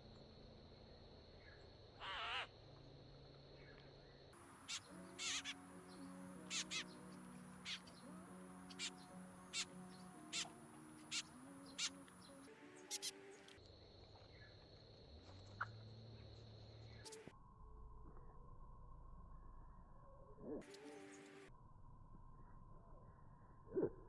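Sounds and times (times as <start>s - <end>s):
birds calling sharply: 4.7s - 5.6s.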